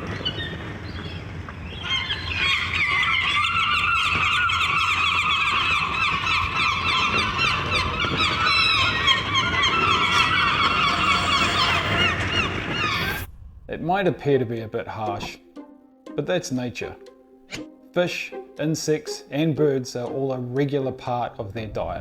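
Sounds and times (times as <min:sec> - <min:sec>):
gulls calling: 0:00.0 - 0:21.7
steady low rumble: 0:11.9 - 0:15.6, 0:21.4 - 0:22.0.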